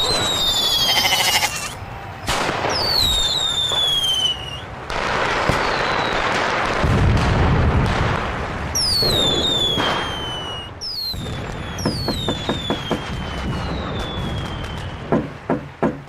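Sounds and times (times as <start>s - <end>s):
fireworks crackling hiss: 0.0s - 15.1s
whistling rockets: 0.0s - 15.8s
firework pops: 2.3s - 16.0s.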